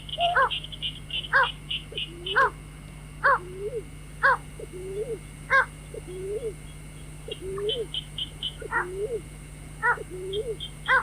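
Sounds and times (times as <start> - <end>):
waterhen call: 0.1 - 2.5.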